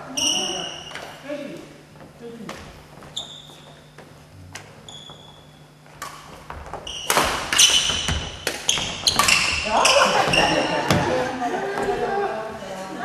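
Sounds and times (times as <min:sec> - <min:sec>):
sports shoes squeaking: 0:00.0 - 0:01.4, 0:02.8 - 0:04.2, 0:04.8 - 0:12.1.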